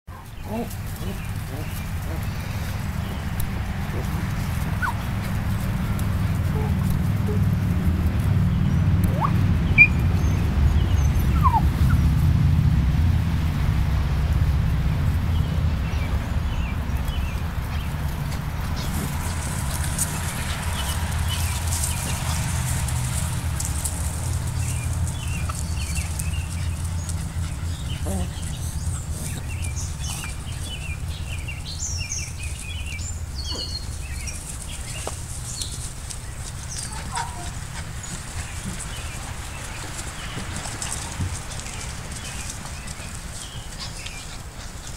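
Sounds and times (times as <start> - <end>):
small birds chirping: 0.1 - 12.1, 15.3 - 44.9
steady low rumble: 0.2 - 44.9
puppies whimpering and yipping: 3.9 - 5.1, 6.5 - 7.5, 9.1 - 10.1, 11.0 - 12.0, 25.2 - 30.5, 36.8 - 37.6.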